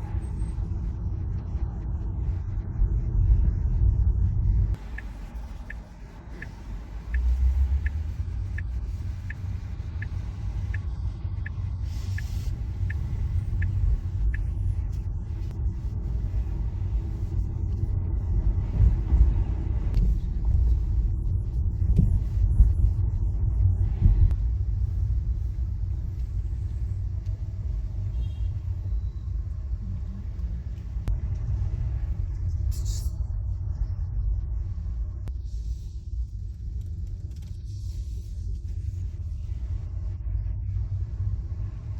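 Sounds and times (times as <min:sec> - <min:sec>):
light regular ticking: 0:04.8 - 0:15.0.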